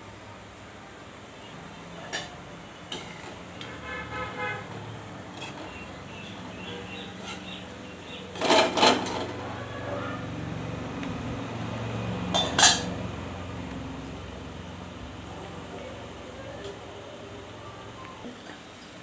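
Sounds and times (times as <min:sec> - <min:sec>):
metal utensil clattering on pan: 0:08.4 - 0:09.4, 0:12.3 - 0:13.0.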